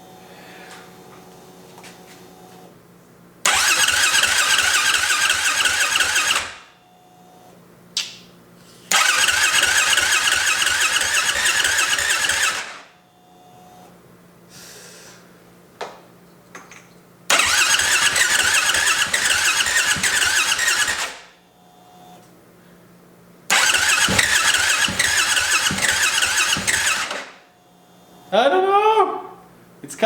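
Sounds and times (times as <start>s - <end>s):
engine cranking without firing: 3.5s - 6.5s, 8.9s - 12.8s, 17.3s - 21.3s, 23.5s - 27.4s
starter click: 17.3s - 21.1s, 23.5s - 27.3s.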